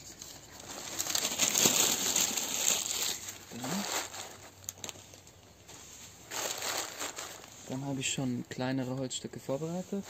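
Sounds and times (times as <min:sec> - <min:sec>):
newspaper being crumpled: 0:00.0 - 0:05.4, 0:06.0 - 0:08.6.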